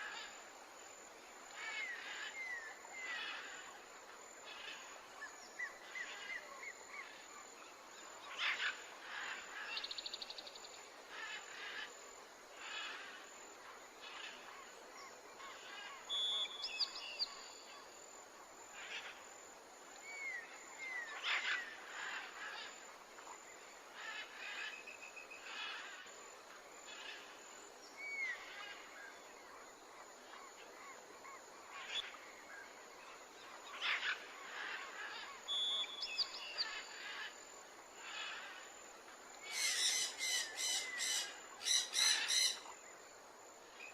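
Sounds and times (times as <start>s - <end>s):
steady natural hiss: 0.0s - 43.9s
bird trills: 39.4s - 42.6s
birds chirping and calling: 39.4s - 42.7s.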